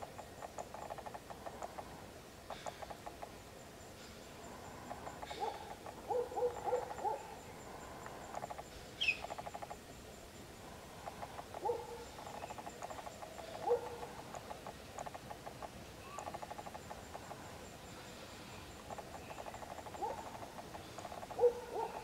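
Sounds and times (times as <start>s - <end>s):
low hooting bird calls: 4.3s - 9.8s, 10.6s - 14.6s, 15.9s - 22.0s.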